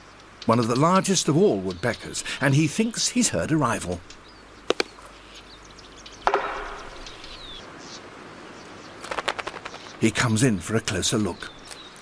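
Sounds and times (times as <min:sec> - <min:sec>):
faint high bird calls: 0:03.8 - 0:10.0
woodpecker knocking on tree: 0:04.7 - 0:05.1, 0:06.2 - 0:07.6
rattling knock: 0:06.3 - 0:07.3.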